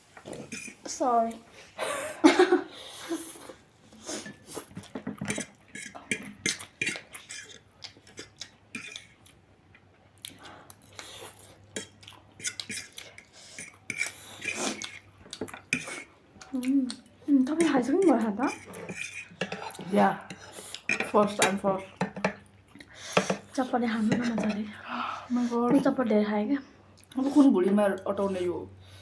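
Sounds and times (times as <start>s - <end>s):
cutlery clinking against plates: 0.4s - 0.8s, 4.3s - 9.2s, 11.8s - 16.1s, 17.6s - 22.4s, 23.1s - 24.6s.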